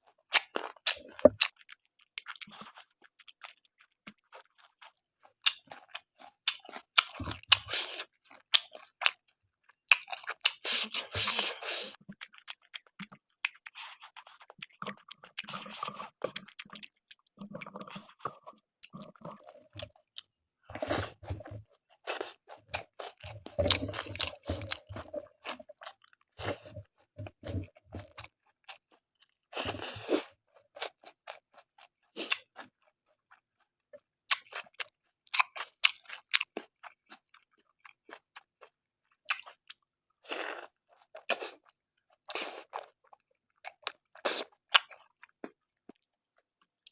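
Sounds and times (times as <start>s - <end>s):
person chewing food: 0.0s - 46.9s
crunching mouth noises: 0.3s - 4.8s, 9.9s - 28.3s.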